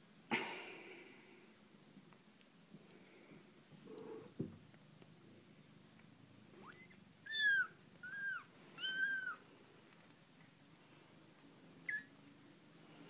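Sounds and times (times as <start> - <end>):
kittens mewing: 6.6 - 9.4.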